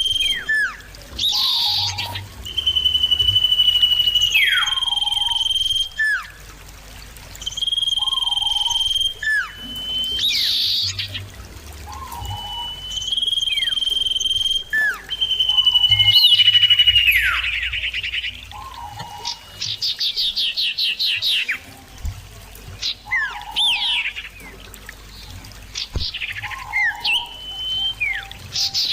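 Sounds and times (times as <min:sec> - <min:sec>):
bird singing high whistles: 0:00.0 - 0:06.4, 0:07.4 - 0:11.2, 0:11.8 - 0:21.5, 0:26.0 - 0:28.9.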